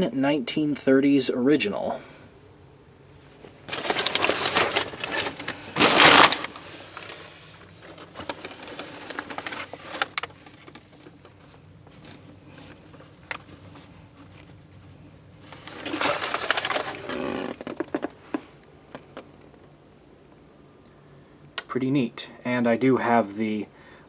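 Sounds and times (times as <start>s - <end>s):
rustling and clattering: 3.2s - 14.6s, 15.4s - 19.3s.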